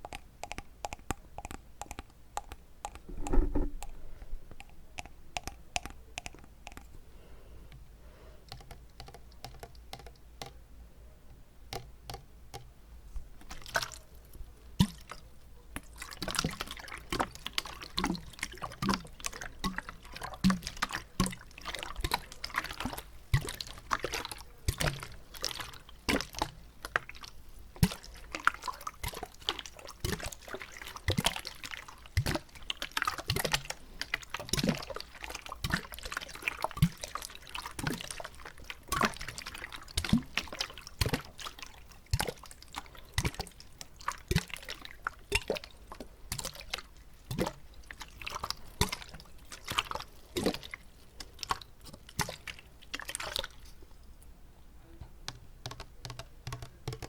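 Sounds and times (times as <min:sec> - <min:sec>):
wet mouth clicks and pops: 0:00.0 - 0:07.0.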